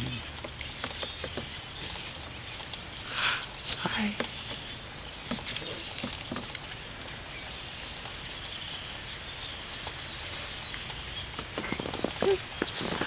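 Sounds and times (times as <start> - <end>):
outdoor hiss: 1.0 - 5.9
footsteps crunching in snow: 11.4 - 13.0.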